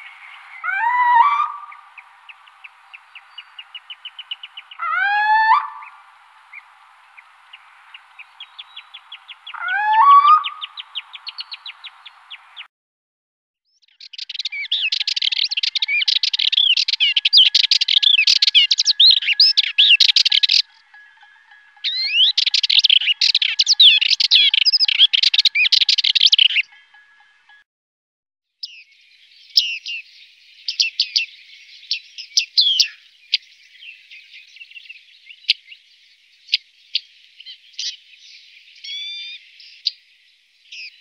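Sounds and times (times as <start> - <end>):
bird rising call: 0.0 - 11.8, 14.1 - 26.9, 36.5 - 40.0
chattering songbird song: 0.0 - 12.7, 13.7 - 27.6, 28.6 - 41.0
ticking bird notes: 14.3 - 27.6.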